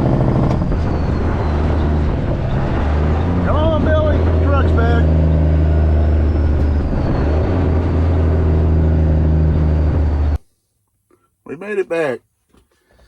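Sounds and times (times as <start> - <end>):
diesel truck engine droning: 0.0 - 10.4.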